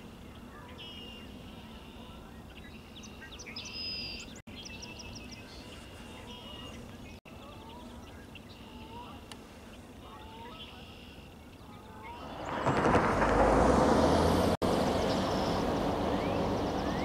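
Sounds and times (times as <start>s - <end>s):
steady low background noise: 0.0s - 13.3s
wild birds chirping and calling: 0.1s - 13.2s, 14.9s - 17.0s.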